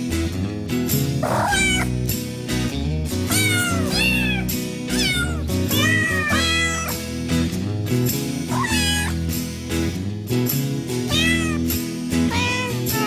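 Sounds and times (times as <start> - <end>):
background music: 0.0 - 13.0
cats meowing: 1.2 - 2.0, 3.3 - 7.0, 8.5 - 9.2, 11.1 - 11.7, 12.3 - 13.0.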